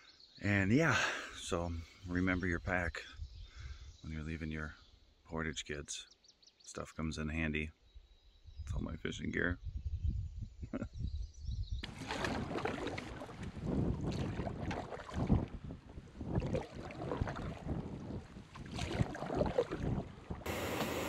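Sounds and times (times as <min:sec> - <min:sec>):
wind rumbling on microphone: 0:08.4 - 0:21.0
paddle splashing water: 0:11.8 - 0:21.0.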